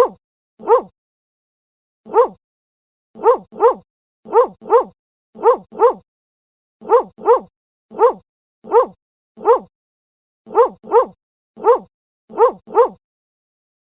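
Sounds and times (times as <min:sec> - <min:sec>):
dog barking: 0:00.0 - 0:00.9, 0:02.1 - 0:02.4, 0:03.2 - 0:06.0, 0:06.8 - 0:09.7, 0:10.5 - 0:13.0.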